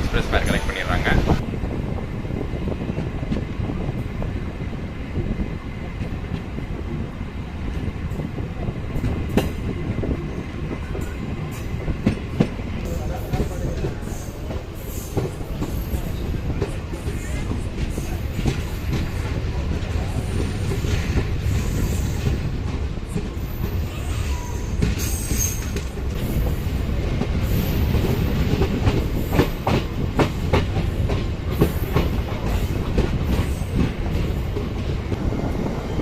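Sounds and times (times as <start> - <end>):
train low rumble: 0.0 - 36.0.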